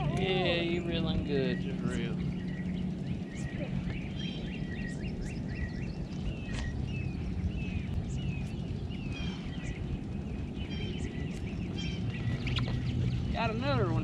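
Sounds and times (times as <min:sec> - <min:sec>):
songbirds chirping and singing: 0:00.0 - 0:14.0
steady low rumble: 0:00.0 - 0:14.0.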